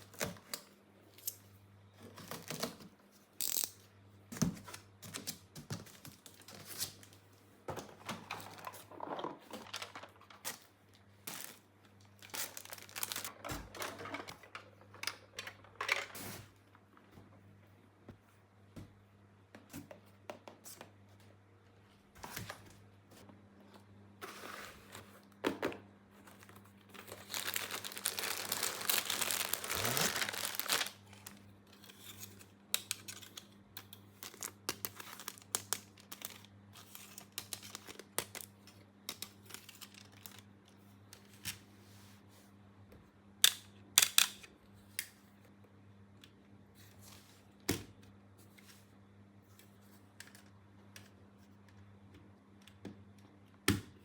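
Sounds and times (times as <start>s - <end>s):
packaging clicks and rustles: 8.0s - 14.8s, 26.3s - 31.4s
packaging crinkling and tearing: 11.2s - 13.4s, 26.9s - 31.4s, 34.2s - 38.6s, 39.2s - 40.5s.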